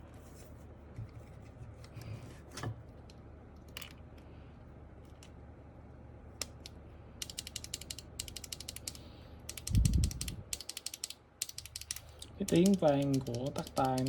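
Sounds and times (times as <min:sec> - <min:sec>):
mechanical keyboard key clicks: 0:06.4 - 0:14.0.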